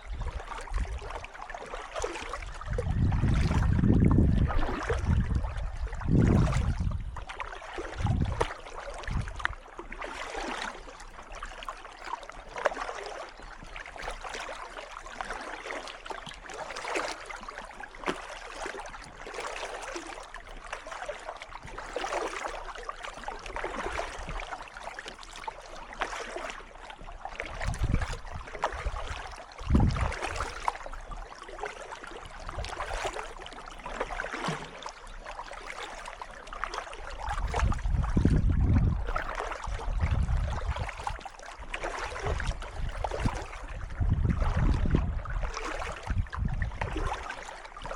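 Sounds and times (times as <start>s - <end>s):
paddle strokes splashing in water: 0.0s - 47.9s
wind buffeting microphone: 0.1s - 1.2s, 2.4s - 7.2s, 7.9s - 9.5s, 27.5s - 30.6s, 37.3s - 41.1s, 42.2s - 47.1s.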